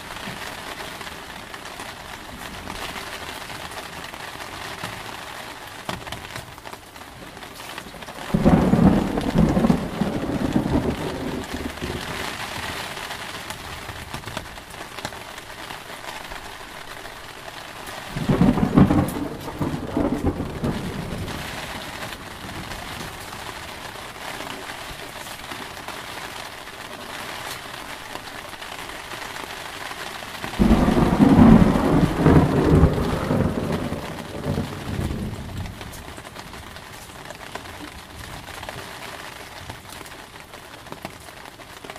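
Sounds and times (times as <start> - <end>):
heavy rain: 0.0 - 41.9
thunder rumbling: 7.8 - 12.6, 18.1 - 23.9, 30.4 - 36.8.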